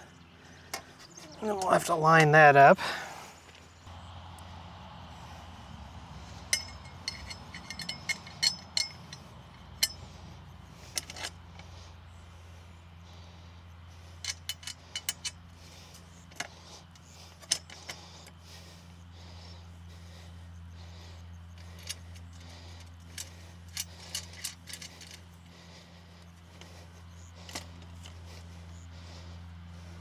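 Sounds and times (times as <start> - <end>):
metal parts clinking: 6.2 - 10.2, 10.8 - 11.7, 14.1 - 16.5, 21.6 - 25.7.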